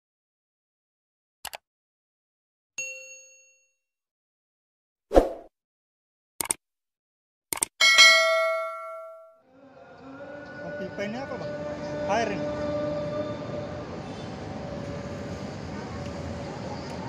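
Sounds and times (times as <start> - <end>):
notification bell ringing: 2.8 - 3.7, 7.8 - 9.4
short chime: 7.8 - 9.4.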